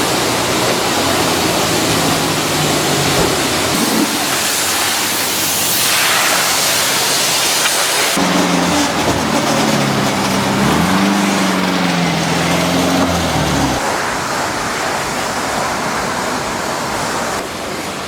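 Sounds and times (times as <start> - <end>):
spraying water rushing: 0.0 - 18.0
motor hum: 8.2 - 13.8.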